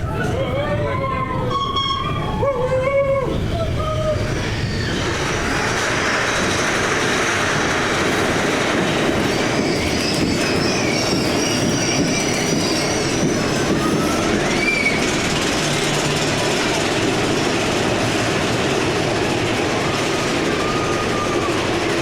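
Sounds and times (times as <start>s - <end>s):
coaster cars rumbling on track: 0.0s - 22.0s
wheel squeal: 1.4s - 2.6s, 3.3s - 16.0s, 19.8s - 22.0s.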